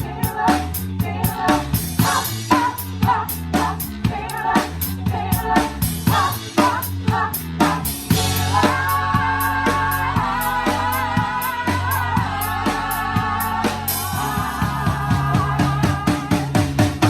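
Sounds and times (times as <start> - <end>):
drum kit beat: 0.0 - 17.0
live band playing pop song: 0.0 - 17.0
person singing: 8.2 - 16.7.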